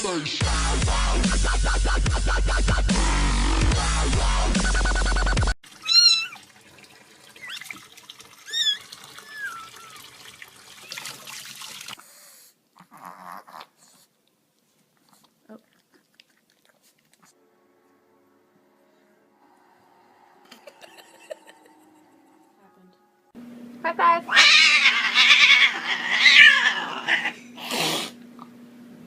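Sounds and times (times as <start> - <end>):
cat meowing: 5.8 - 6.4, 8.5 - 10.1, 24.3 - 27.4.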